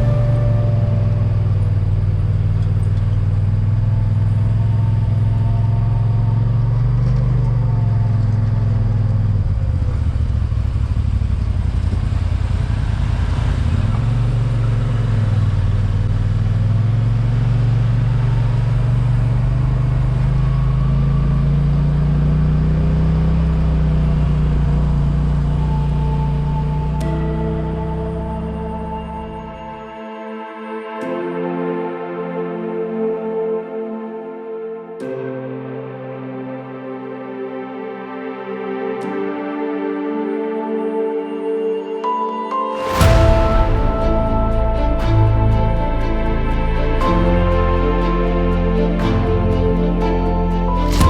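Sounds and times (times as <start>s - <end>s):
vehicle engine droning: 0.0s - 29.9s.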